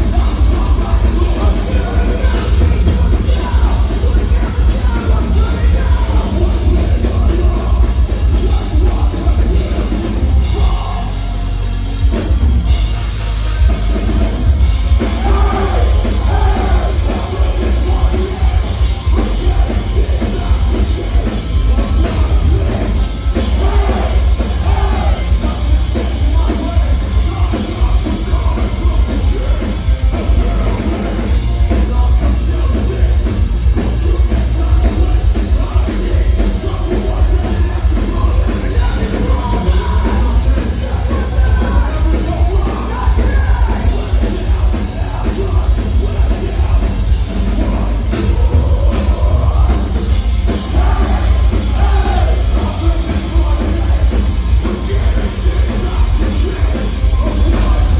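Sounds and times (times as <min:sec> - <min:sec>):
distorted guitars: 0:00.0 - 0:57.9
pounding drums and bass: 0:00.0 - 0:57.9
shouted vocals: 0:15.0 - 0:29.6, 0:36.0 - 0:57.9.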